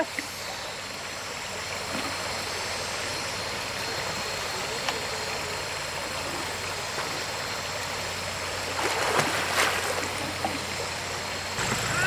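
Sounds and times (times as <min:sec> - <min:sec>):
stream water rushing: 0:05.6 - 0:12.0.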